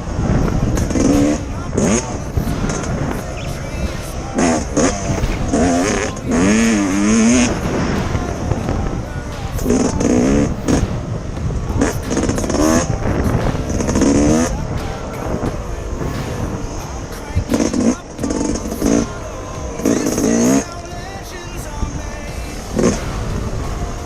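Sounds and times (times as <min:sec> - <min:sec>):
dirt bike engine revving: 0:00.0 - 0:24.0
steady low rumble: 0:00.0 - 0:24.0.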